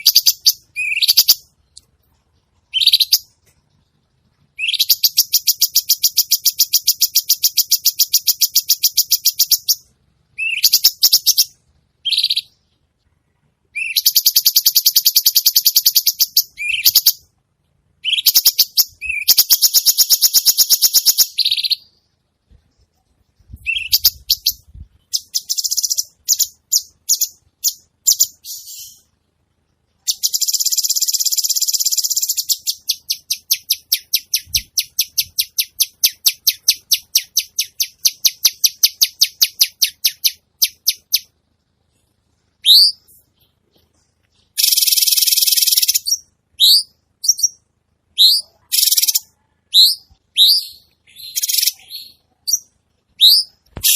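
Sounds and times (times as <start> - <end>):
songbird rattling trills: 44.5 - 46.2.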